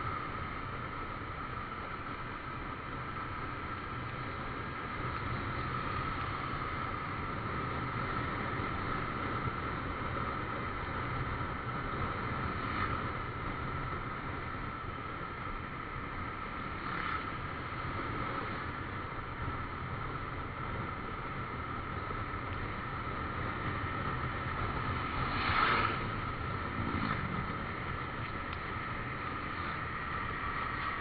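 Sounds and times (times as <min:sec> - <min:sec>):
motorcycle engine drone: 0:00.0 - 0:31.0
wind rushing over microphone: 0:19.6 - 0:31.0.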